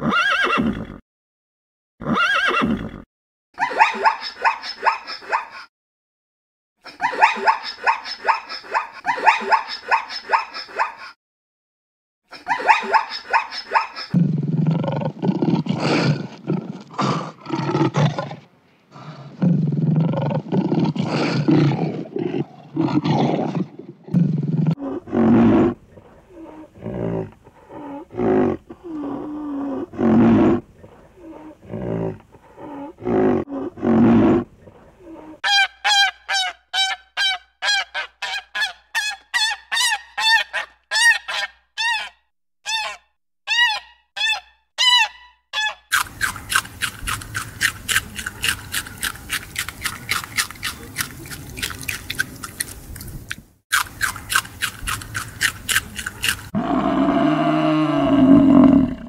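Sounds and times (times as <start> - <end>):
lion roaring and growling: 14.1 - 35.4, 56.4 - 59.0.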